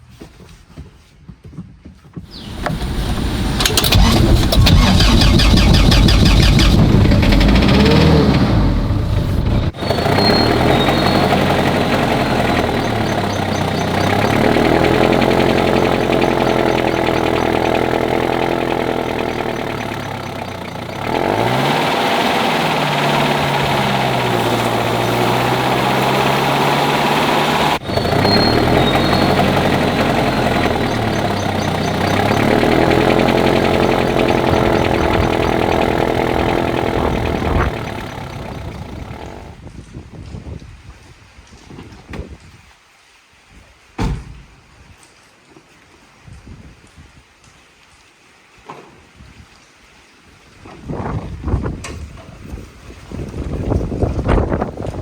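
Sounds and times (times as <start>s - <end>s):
car engine revving: 2.3s - 39.6s.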